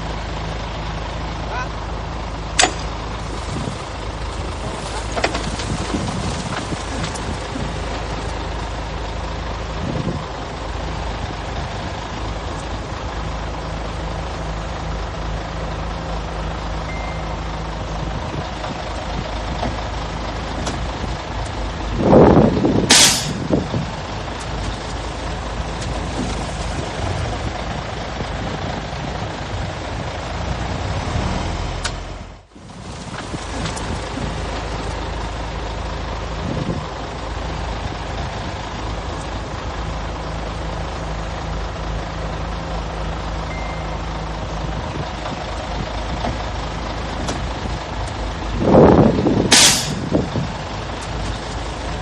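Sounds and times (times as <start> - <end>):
heavy diesel engines running: 0.0 - 52.0
air brake hiss: 22.9 - 23.4, 49.5 - 50.1
loud burst: 49.5 - 50.1.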